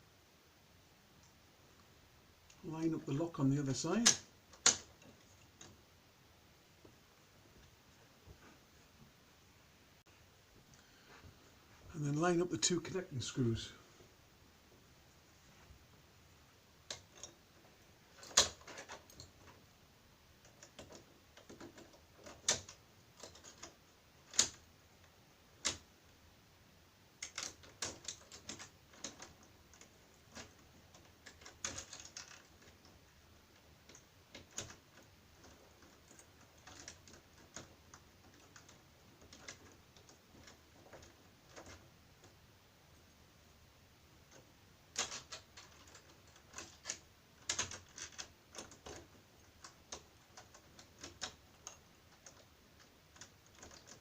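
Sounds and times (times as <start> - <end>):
metal lock parts clicking: 18.2 - 19.6, 20.4 - 24.7, 27.2 - 32.9, 33.9 - 41.8, 44.3 - 54.0.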